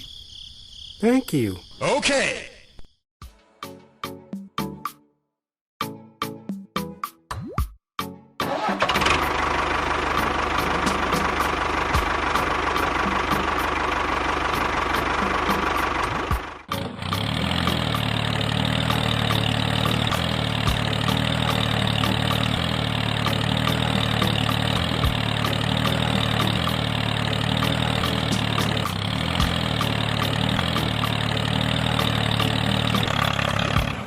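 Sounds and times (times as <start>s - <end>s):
small engine running: 8.5s - 34.0s.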